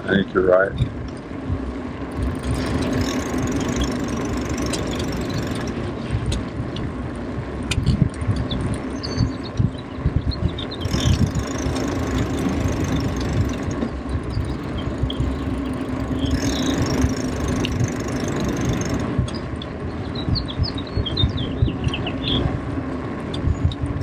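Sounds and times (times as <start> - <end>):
wind buffeting microphone: 0.0 - 24.0
bird chirps: 8.4 - 17.6, 18.2 - 22.5.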